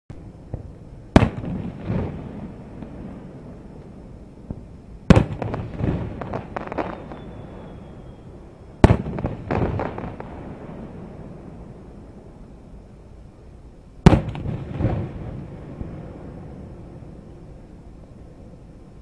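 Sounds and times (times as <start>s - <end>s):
echo and crackle: 0.1s - 12.9s
firework shells booming: 0.5s - 3.0s, 4.5s - 7.9s, 8.8s - 10.4s, 14.0s - 15.5s.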